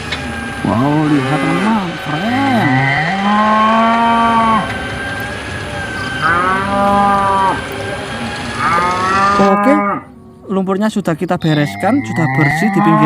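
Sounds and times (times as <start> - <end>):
cattle mooing: 0.6 - 4.8, 5.9 - 10.2, 12.0 - 13.0.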